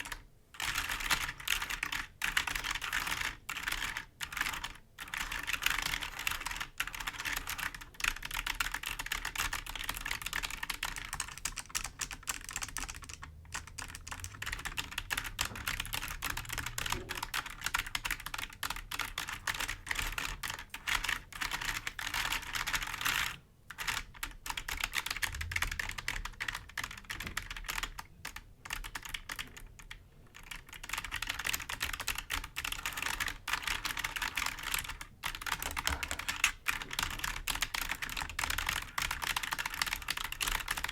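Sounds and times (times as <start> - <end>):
fingers typing on keyboard: 0.0 - 40.9.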